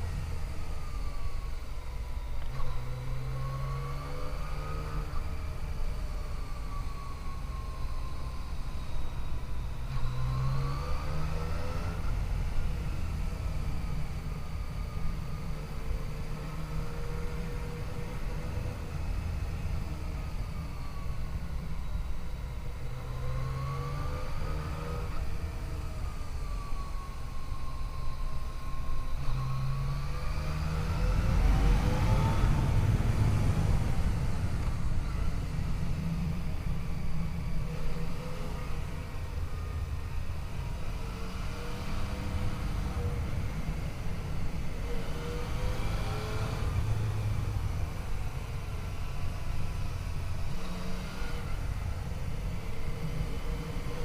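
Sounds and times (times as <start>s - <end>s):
low wind rumble: 30.8s - 50.6s.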